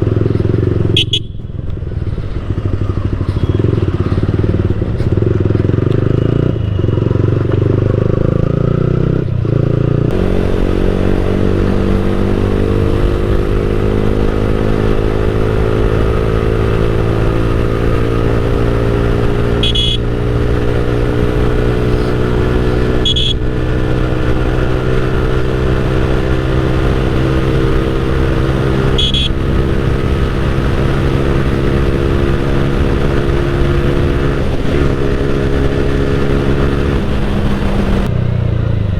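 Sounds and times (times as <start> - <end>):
motorcycle engine drone: 0.0 - 38.9
high-pitched beeps: 19.6 - 20.0, 23.0 - 23.4.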